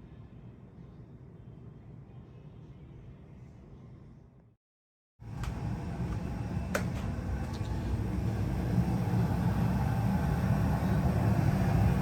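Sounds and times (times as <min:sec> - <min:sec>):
furnace blower air rush: 0:05.2 - 0:12.0.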